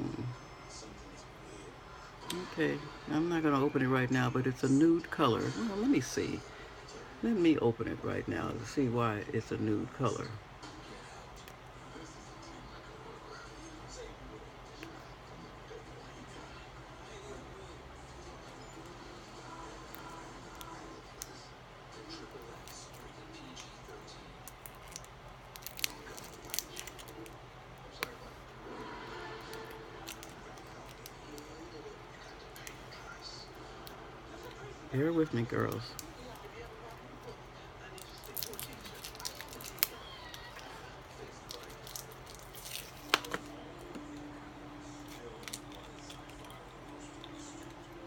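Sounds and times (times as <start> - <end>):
low steady hum: 0.0 - 48.0
plastic packaging crinkling and clicking: 24.4 - 28.3, 29.5 - 31.5, 37.9 - 44.2, 45.0 - 47.7.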